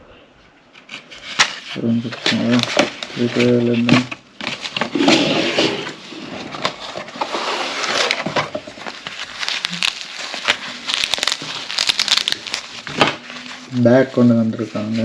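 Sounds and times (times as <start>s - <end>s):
packaging rustling and crinkling: 1.2s - 14.0s.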